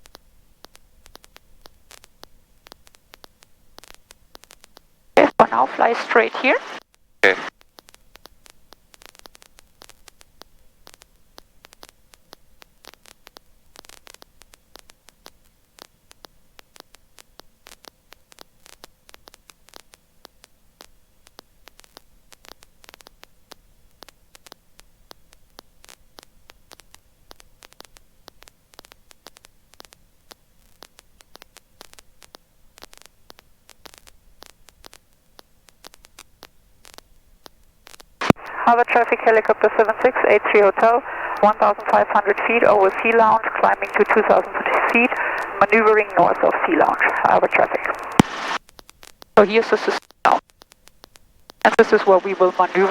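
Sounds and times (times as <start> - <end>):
faint crackling static: 0.0 - 52.9
steady electrical hum: 38.2 - 48.6.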